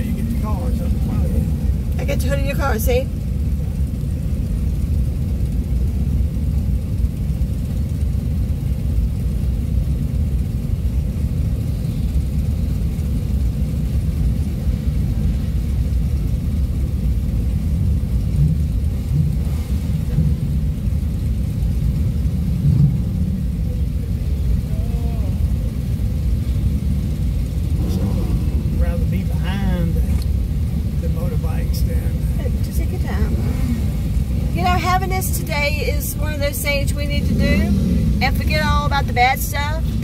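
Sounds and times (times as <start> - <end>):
car engines idling: 0.0 - 40.0.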